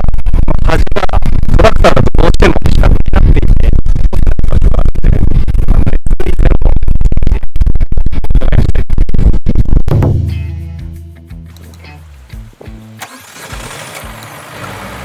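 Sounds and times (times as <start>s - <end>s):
record scratching: 1.5s - 9.9s
low engine hum: 9.9s - 15.0s.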